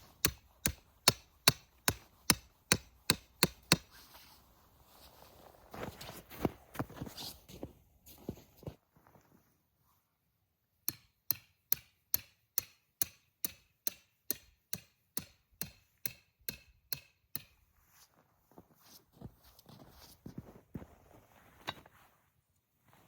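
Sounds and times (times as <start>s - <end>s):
tent peg hammered into ground: 0.2s - 4.0s.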